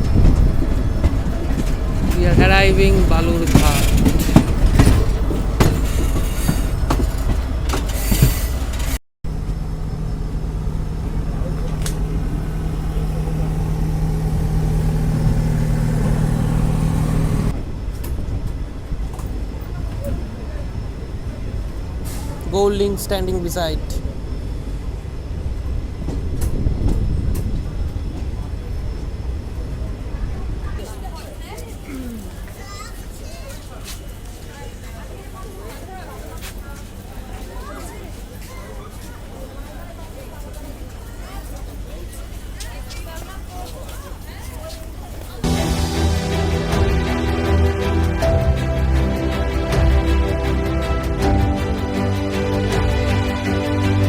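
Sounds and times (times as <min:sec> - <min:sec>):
train wheels clattering over rails: 0:00.0 - 0:09.0
train coaches rumbling on rails: 0:00.0 - 0:54.0
steady low hum: 0:09.3 - 0:22.5.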